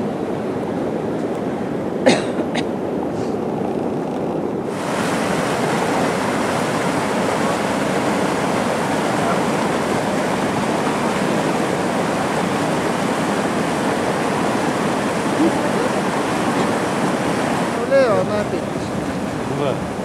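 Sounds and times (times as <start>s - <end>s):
waterfall rushing: 4.7s - 20.0s.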